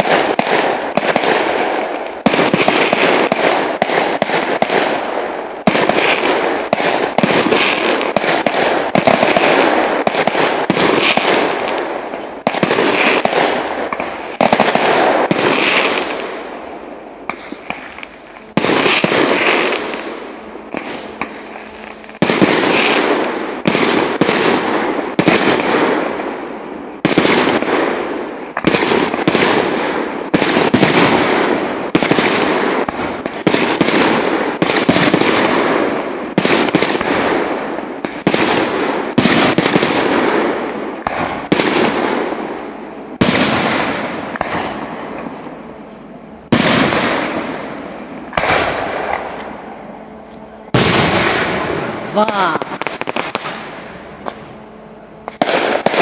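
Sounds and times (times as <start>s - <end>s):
firework shells bursting: 17.2s - 26.0s.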